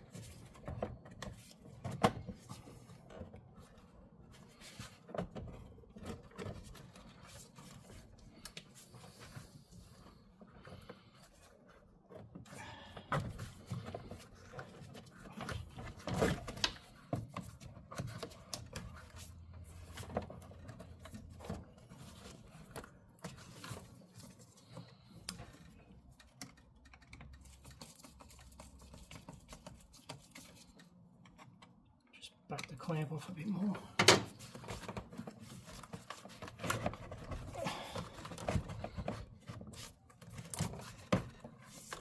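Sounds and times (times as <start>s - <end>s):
plastic ducting clicks and knocks: 12.1s - 31.9s.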